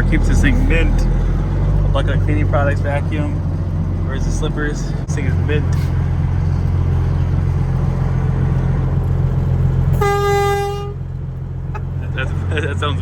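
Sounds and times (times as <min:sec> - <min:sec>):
diesel engine drone: 0:00.0 - 0:13.0
truck horn: 0:09.9 - 0:12.1.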